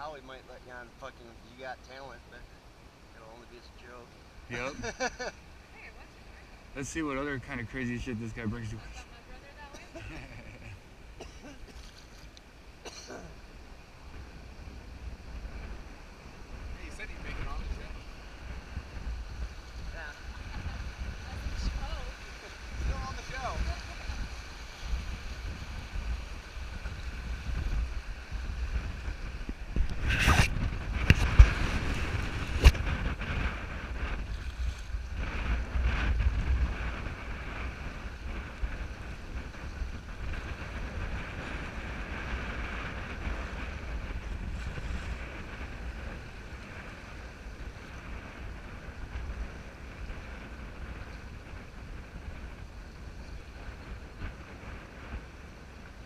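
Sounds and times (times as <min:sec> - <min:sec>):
wind on microphone: 0:04.3 - 0:12.4, 0:13.1 - 0:56.0.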